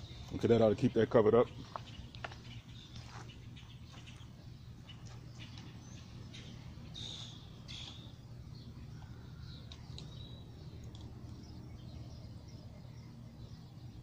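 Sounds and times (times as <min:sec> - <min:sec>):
faint bird chirps: 0:00.0 - 0:14.0
steady low hum: 0:00.0 - 0:14.0.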